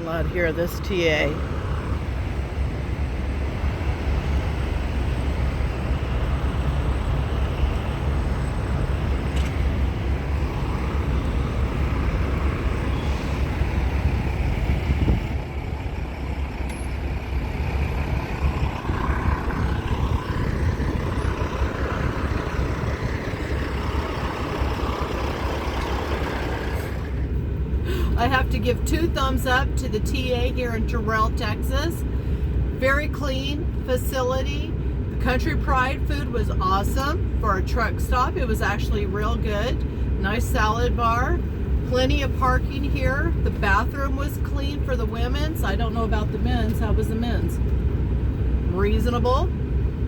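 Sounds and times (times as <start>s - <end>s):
heavy trucks rumbling: 0.0s - 50.0s.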